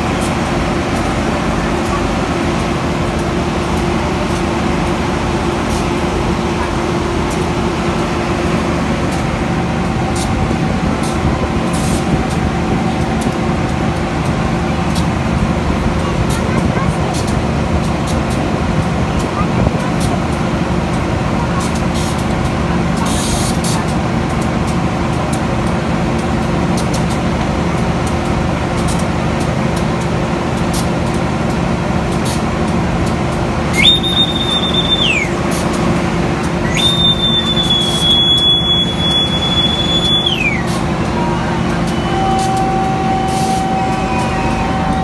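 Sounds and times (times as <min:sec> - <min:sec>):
train rumbling: 0:00.0 - 0:45.0
high shrill train whistle: 0:33.6 - 0:35.4, 0:36.6 - 0:45.0.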